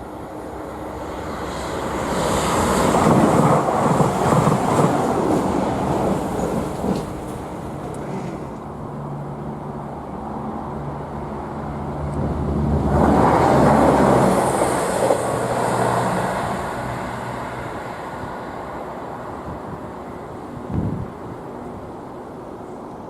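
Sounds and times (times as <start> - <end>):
road vehicle passing: 10.5 - 19.6.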